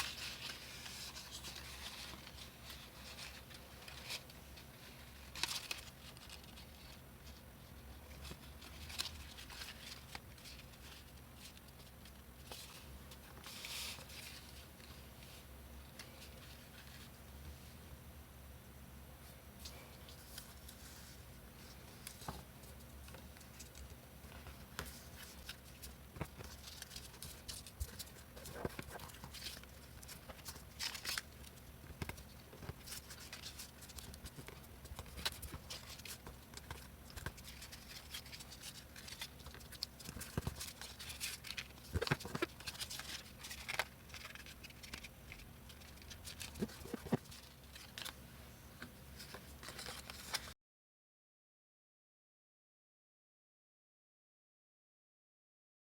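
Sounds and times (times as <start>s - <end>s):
paper rustling and clicking: 0.0s - 6.8s, 21.6s - 48.2s, 48.8s - 50.5s
faint steady hum: 0.0s - 50.6s.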